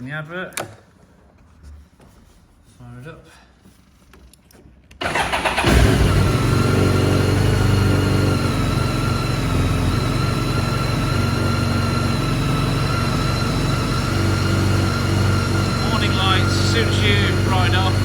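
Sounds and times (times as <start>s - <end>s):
motorcycle engine idling: 5.0s - 18.0s.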